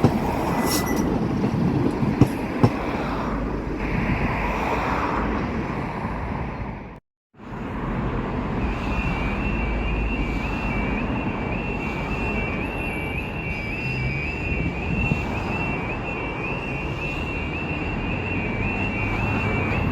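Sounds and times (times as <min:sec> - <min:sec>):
train rumbling by: 0:00.0 - 0:19.9.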